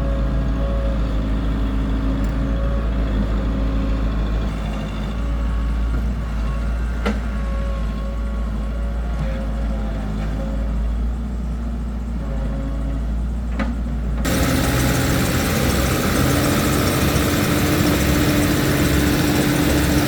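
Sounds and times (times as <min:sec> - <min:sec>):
heavy diesel engine running: 0:14.3 - 0:20.0.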